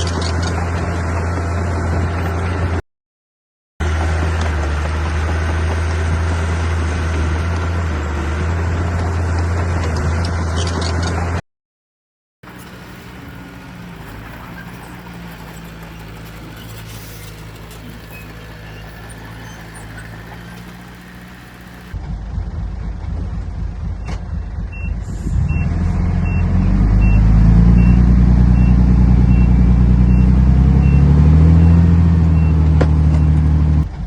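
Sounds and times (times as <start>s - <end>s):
loud diesel machinery engine: 0.0s - 2.8s, 3.8s - 11.4s, 12.4s - 34.0s
quieter engine drone: 12.4s - 34.0s.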